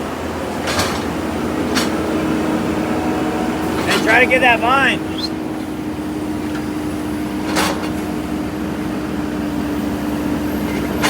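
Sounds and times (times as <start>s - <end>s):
digging machine engine humming: 0.0s - 11.0s.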